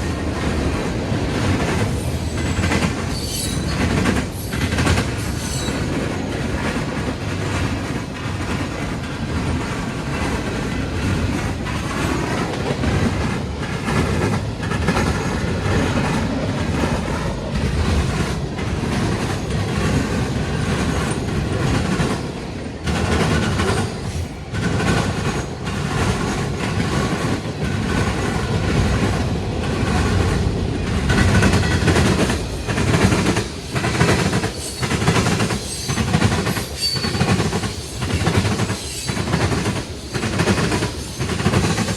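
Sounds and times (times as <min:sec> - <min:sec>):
railroad cars rumbling: 0:00.0 - 0:41.9
faint wheel squeal: 0:03.1 - 0:03.9, 0:34.5 - 0:39.5.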